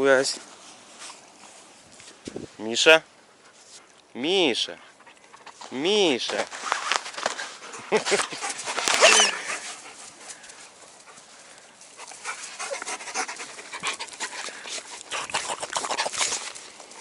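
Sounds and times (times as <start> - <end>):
dog panting: 7.5 - 17.0.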